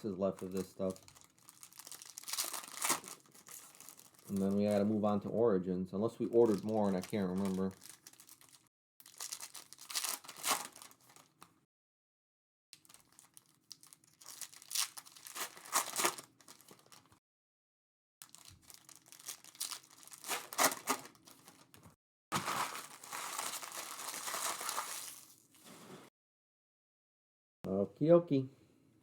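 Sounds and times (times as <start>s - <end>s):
foil wrappers crinkling and tearing: 0.0s - 4.8s, 6.3s - 11.4s, 12.8s - 17.2s, 18.2s - 25.5s.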